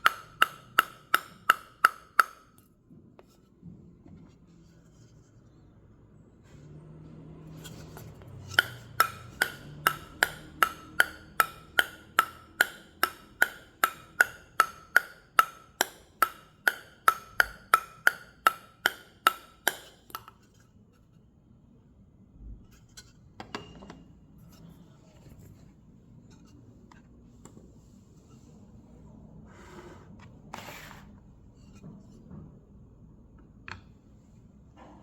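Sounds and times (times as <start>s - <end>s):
table tennis ball bouncing on paddle: 0.0s - 2.6s, 7.5s - 20.5s.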